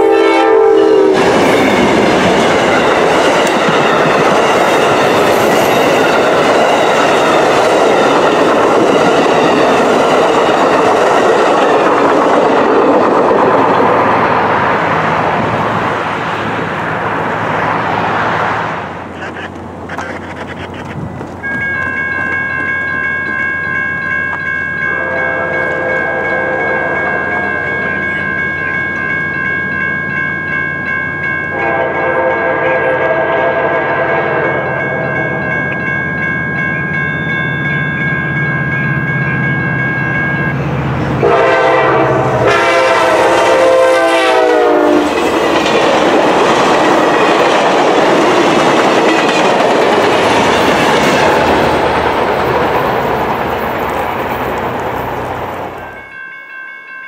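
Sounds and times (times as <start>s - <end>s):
train horn blasts: 0.0s - 1.7s, 24.9s - 27.7s, 31.5s - 35.4s, 41.2s - 45.2s
crossing bell ringing: 0.0s - 12.7s, 21.0s - 57.0s
train cars rushing by: 0.0s - 56.6s.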